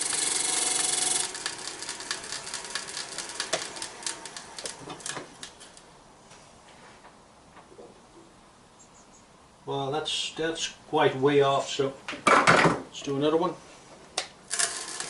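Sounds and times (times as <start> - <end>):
lathe tool cutting wood: 0.0 - 5.5, 14.5 - 15.0.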